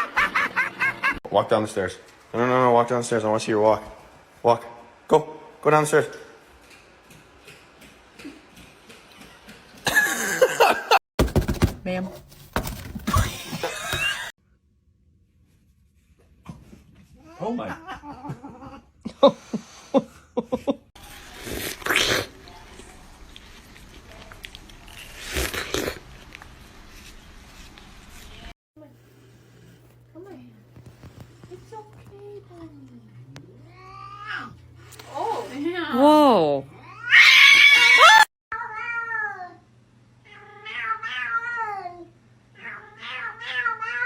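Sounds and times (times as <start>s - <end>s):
harsh cry: 37.0s - 38.3s.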